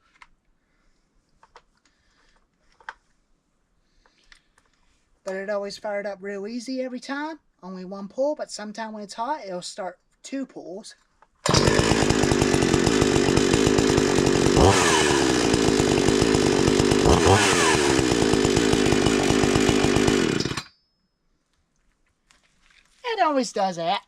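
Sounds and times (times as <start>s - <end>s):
chainsaw running with throttle blips: 11.4s - 20.7s.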